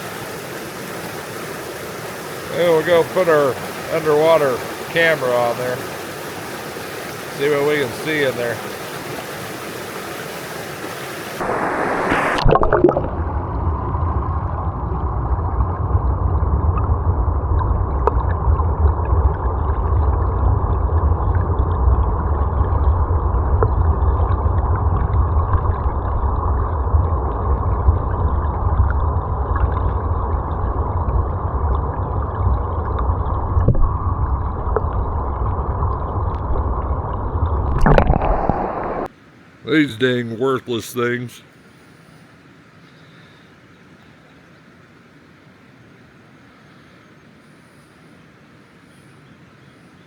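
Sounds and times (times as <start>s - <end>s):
muffled underwater water rushing: 0.0s - 39.2s
brief bright water noise: 10.8s - 13.8s.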